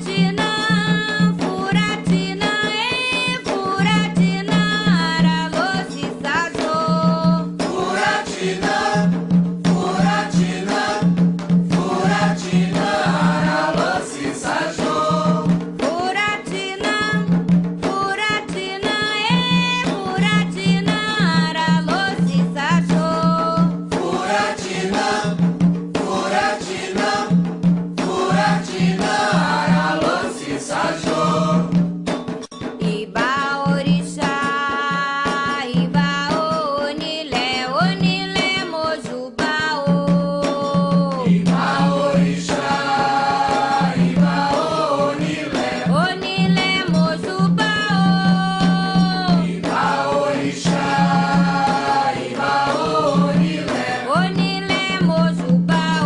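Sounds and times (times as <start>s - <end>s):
steady percussion: 0.0s - 56.0s
voices chanting: 7.8s - 11.1s, 11.8s - 15.4s, 24.0s - 25.4s, 26.0s - 27.3s, 28.0s - 31.7s, 41.3s - 46.0s, 49.3s - 54.1s.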